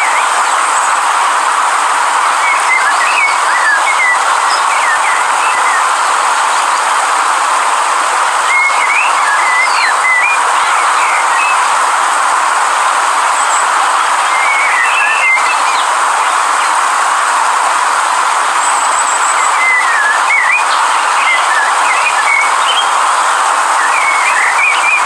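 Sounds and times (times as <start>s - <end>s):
river water rushing: 0.0s - 25.0s
small birds chirping: 8.6s - 11.8s, 13.5s - 16.8s, 18.7s - 25.0s.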